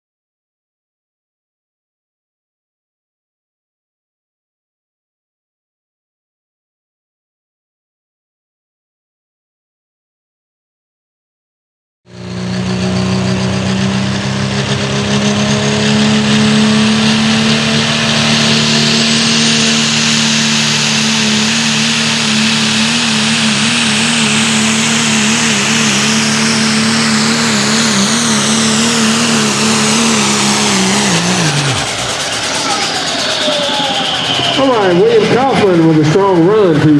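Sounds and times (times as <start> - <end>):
pulling truck engine at full throttle: 12.1 - 36.9
high whistle: 25.9 - 35.8.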